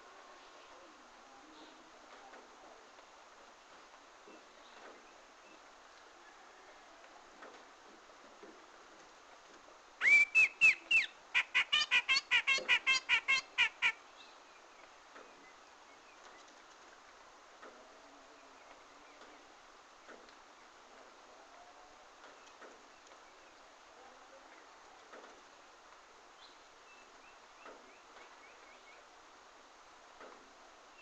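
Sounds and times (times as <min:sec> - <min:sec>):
faint background hiss: 0:00.0 - 0:31.0
bulbul calling: 0:10.0 - 0:14.0.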